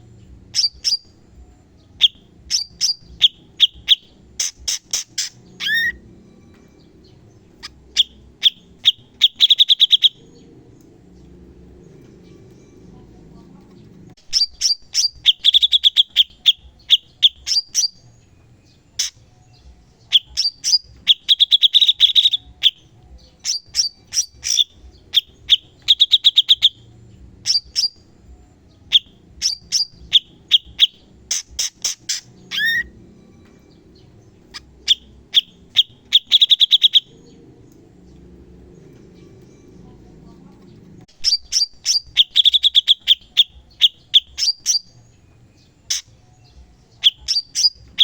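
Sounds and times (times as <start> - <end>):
bird singing quick chirps and trills: 0.5 - 1.2, 2.0 - 6.0, 6.7 - 10.5, 14.2 - 28.1, 28.9 - 33.0, 33.9 - 37.8, 41.1 - 48.0.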